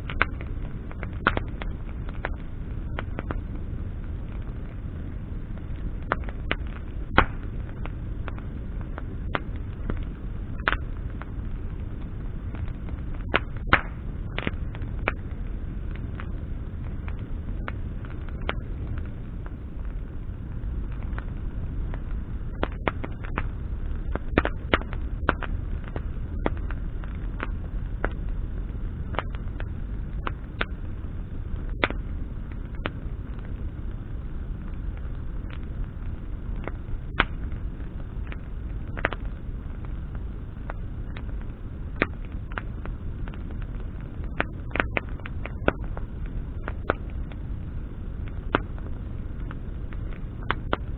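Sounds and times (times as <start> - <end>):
sharp pops and snaps: 0.0 - 4.8, 5.5 - 30.9, 31.5 - 34.0, 34.6 - 50.9
bonfire crackling: 0.0 - 50.9
low rumble of flames: 0.0 - 50.9.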